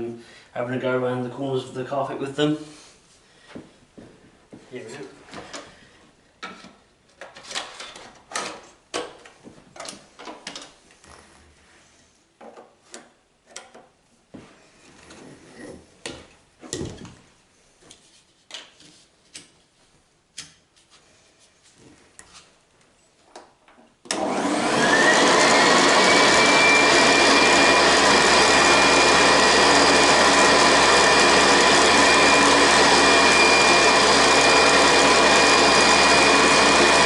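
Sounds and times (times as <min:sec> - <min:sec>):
vacuum cleaner tools clicking: 0:24.1 - 0:27.9.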